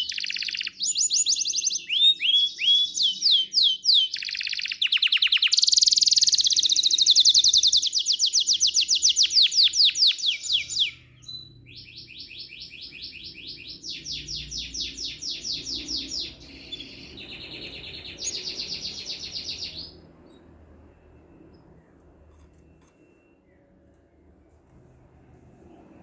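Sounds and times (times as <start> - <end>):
songbird singing rapid trills: 0.0 - 20.5.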